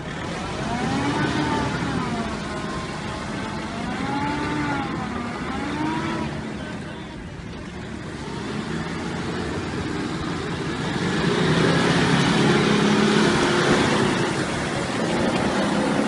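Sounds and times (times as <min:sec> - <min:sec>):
vehicle engine under load: 0:00.0 - 0:16.0.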